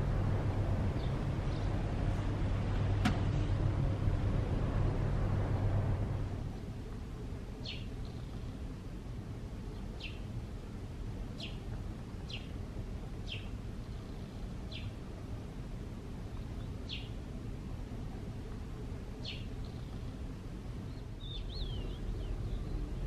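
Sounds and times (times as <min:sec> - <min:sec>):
low background rumble: 0:00.0 - 0:23.0
bird chirping: 0:07.6 - 0:08.6, 0:09.7 - 0:10.3, 0:11.3 - 0:12.6, 0:13.2 - 0:15.0, 0:16.3 - 0:17.2, 0:19.2 - 0:20.2, 0:20.8 - 0:23.0.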